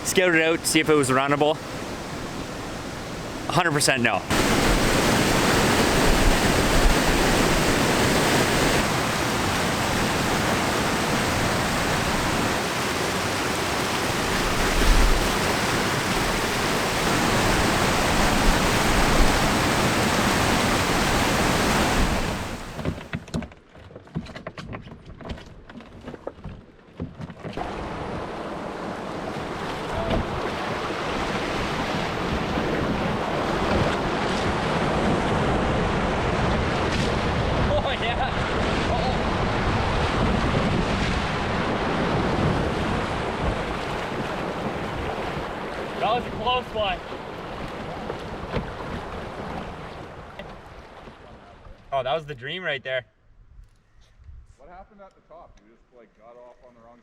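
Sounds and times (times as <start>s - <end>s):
river rapids rushing: 0.0s - 22.9s.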